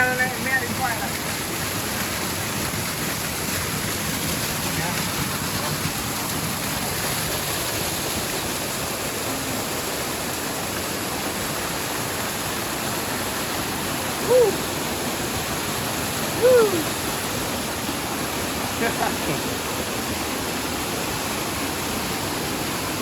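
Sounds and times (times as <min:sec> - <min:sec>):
waterfall rushing: 0:00.0 - 0:23.0
rising and falling calls: 0:14.2 - 0:14.7, 0:16.4 - 0:16.9.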